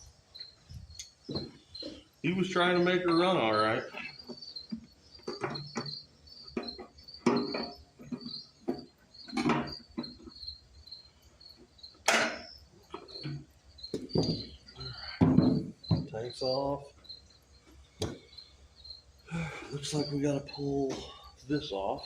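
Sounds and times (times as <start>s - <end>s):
crickets chirping: 0.0s - 22.0s
hand tools and metal parts clinking: 0.7s - 10.4s.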